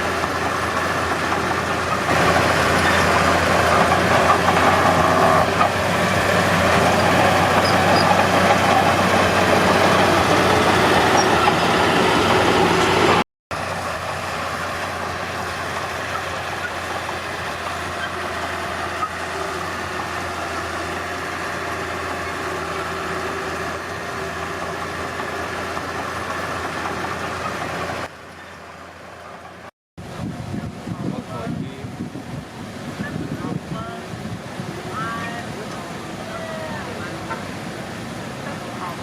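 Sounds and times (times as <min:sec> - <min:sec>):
diesel machinery engine running: 0:00.0 - 0:39.0.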